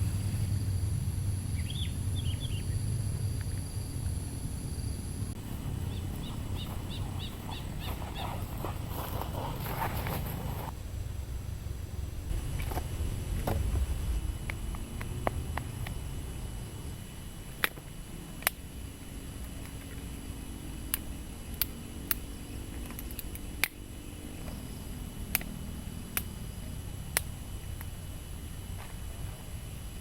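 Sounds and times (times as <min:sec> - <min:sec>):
low steady rumble: 0:00.0 - 0:30.0
campfire crackling and popping: 0:12.2 - 0:29.1.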